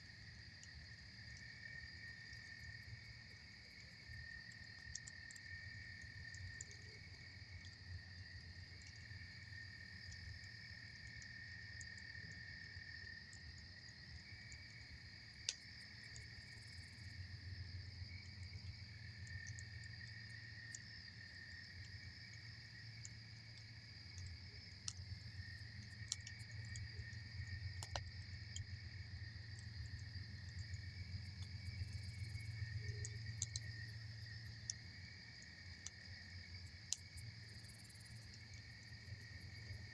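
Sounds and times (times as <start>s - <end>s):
crickets chirping: 0.0s - 39.9s
campfire crackling: 13.6s - 39.9s.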